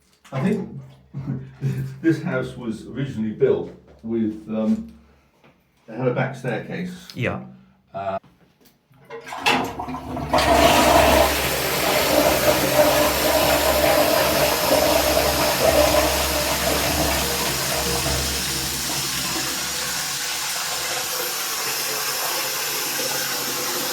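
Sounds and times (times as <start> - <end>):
toilet flushing: 9.1 - 23.9.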